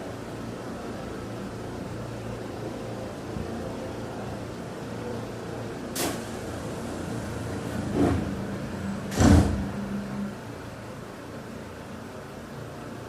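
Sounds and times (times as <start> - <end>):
steady hum: 0.0 - 13.0
train doors sliding shut: 5.9 - 10.4
short sharp hiss: 6.0 - 6.4.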